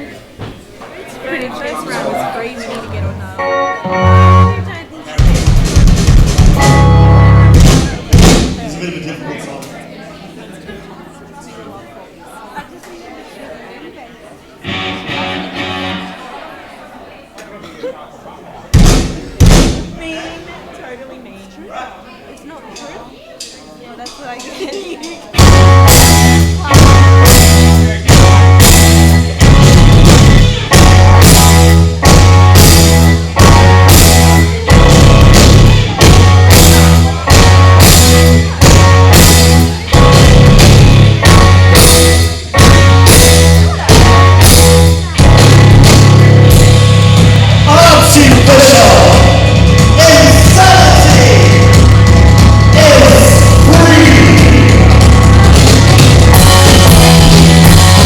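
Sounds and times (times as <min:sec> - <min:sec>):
rock band playing: 0:02.4 - 0:11.8, 0:14.6 - 0:16.7, 0:24.0 - 0:58.0
person singing: 0:52.7 - 0:55.3.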